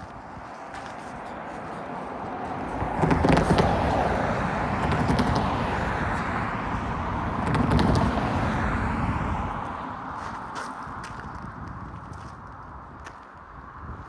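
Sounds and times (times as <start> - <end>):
freight train rumbling past: 1.8 - 10.2.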